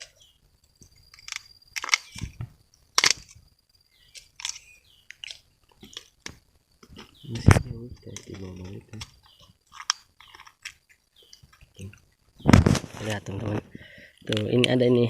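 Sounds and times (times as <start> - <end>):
thin steady high tone: 0.0 - 15.0
vegetation crunching and snapping: 3.0 - 3.4, 4.1 - 9.1.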